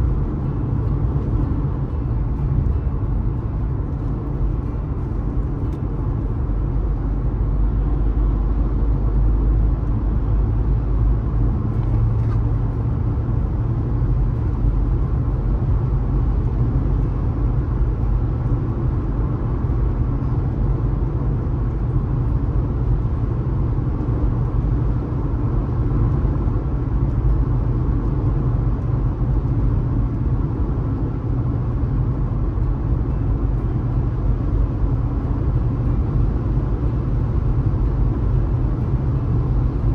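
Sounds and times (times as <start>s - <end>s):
car cruising road noise: 0.0s - 39.9s.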